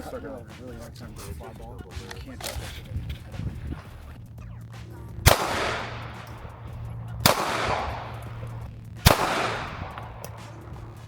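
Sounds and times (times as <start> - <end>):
gunshots with echo: 4.8 - 11.0.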